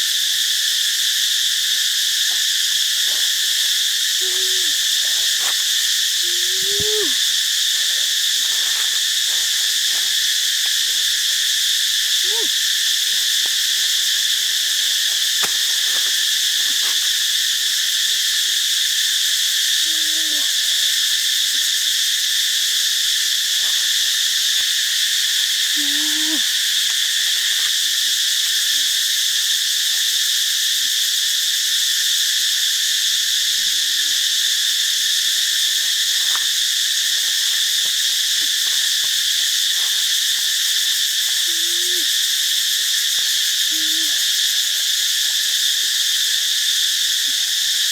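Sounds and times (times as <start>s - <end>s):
insects chirping: 0.0s - 47.9s
low animal call: 3.0s - 10.2s, 12.2s - 12.6s, 25.7s - 26.6s, 41.3s - 42.2s, 43.7s - 44.3s.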